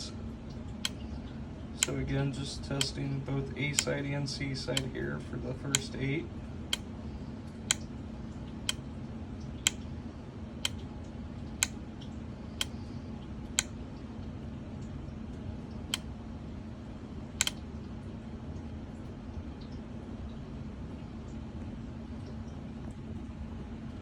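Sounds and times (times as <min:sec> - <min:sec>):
steady low hum: 0:00.0 - 0:24.0
solenoid clicks: 0:00.8 - 0:01.0, 0:01.8 - 0:04.1, 0:04.7 - 0:05.0, 0:05.7 - 0:06.1, 0:10.6 - 0:10.8, 0:12.6 - 0:12.8, 0:17.4 - 0:17.6.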